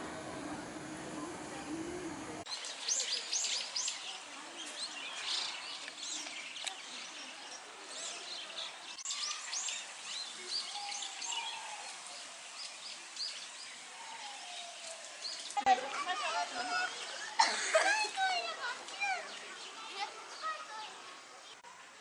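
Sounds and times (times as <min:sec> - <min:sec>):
small birds chirping: 0:02.5 - 0:17.4.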